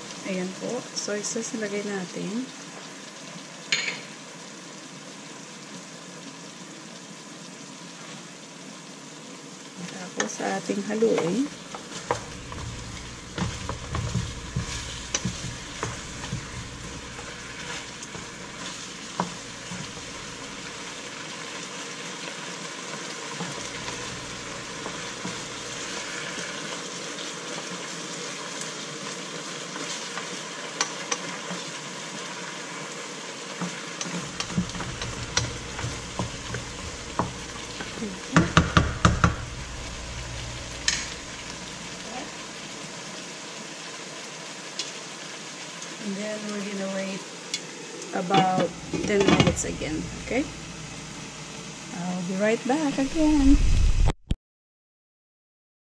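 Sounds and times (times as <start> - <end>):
chicken sizzling in a pan: 0.0 - 54.1
wooden spatula scraping a pan: 10.2 - 21.2, 23.3 - 27.6, 33.5 - 42.7.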